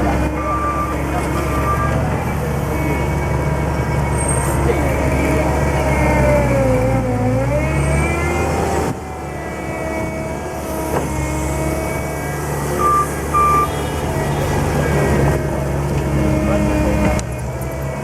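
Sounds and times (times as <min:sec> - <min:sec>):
loader diesel engine and hydraulics: 0:00.0 - 0:18.0
short beeps: 0:00.3 - 0:04.4, 0:12.8 - 0:14.4.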